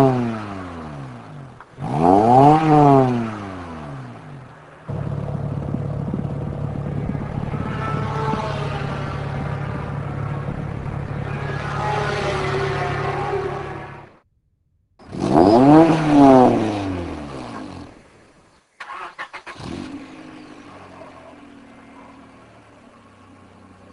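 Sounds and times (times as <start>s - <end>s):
steady engine drone: 0.0s - 14.3s
car passing at speed: 5.5s - 14.2s.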